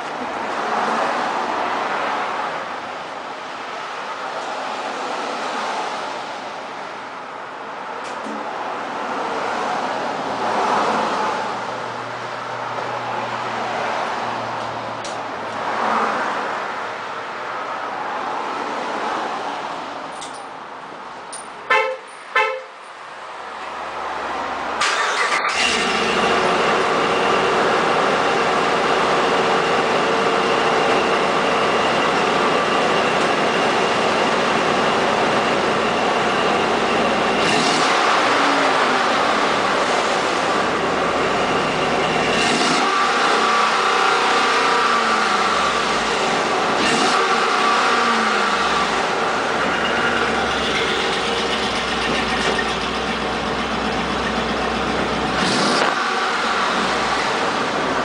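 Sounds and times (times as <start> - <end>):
vehicle horn beeps: 21.7 - 22.8
vehicle engine running: 24.9 - 58.0.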